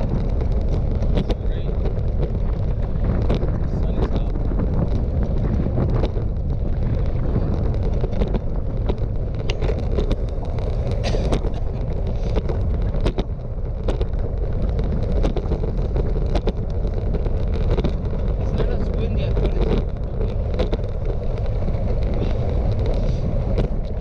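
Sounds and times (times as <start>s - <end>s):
sharp clicks and knocks: 0.0s - 24.0s
strong wind buffeting microphone: 0.0s - 24.0s.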